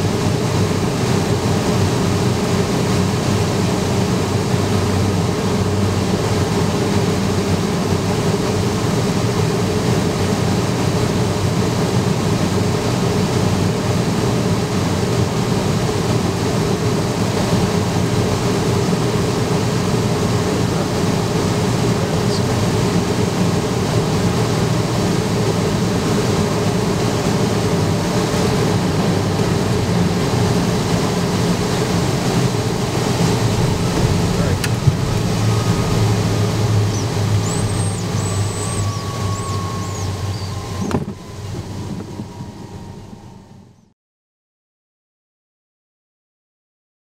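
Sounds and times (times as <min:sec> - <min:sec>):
jet engines running: 0:00.0 - 0:43.9
faint falling whine: 0:24.0 - 0:43.9
air rushing past: 0:29.9 - 0:43.6.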